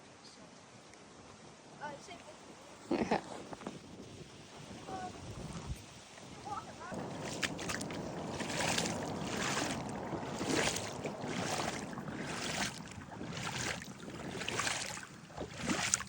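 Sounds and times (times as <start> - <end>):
low wind rumble: 2.9 - 16.0
footsteps swishing through brush: 7.0 - 16.0.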